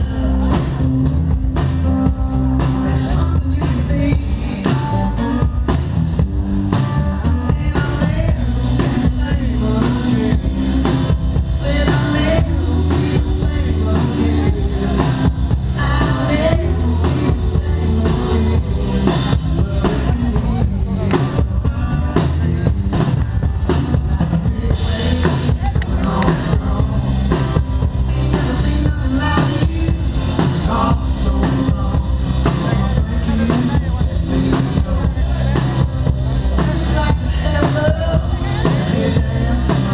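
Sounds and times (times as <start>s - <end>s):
person singing: 0.0s - 5.7s, 6.7s - 39.9s
drum kit beat: 0.0s - 39.9s
live rock band playing: 0.0s - 39.9s.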